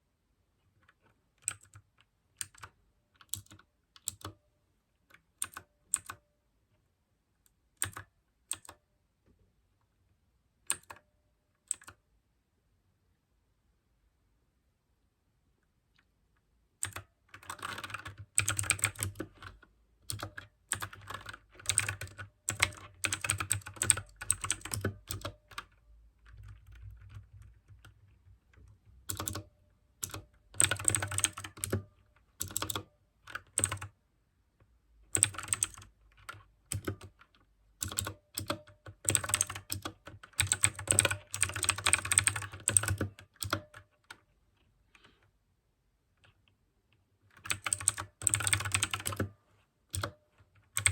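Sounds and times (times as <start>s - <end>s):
fast clicky keyboard typing: 1.4s - 4.4s, 7.8s - 8.8s, 16.8s - 33.9s, 35.1s - 37.2s, 37.8s - 44.2s, 47.4s - 49.3s, 49.9s - 50.9s.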